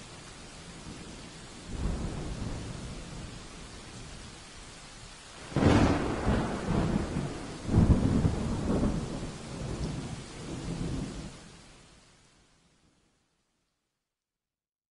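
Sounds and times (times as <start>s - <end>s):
steady rain: 0.0s - 14.0s
thunder rumbling: 0.8s - 4.3s, 5.4s - 11.4s.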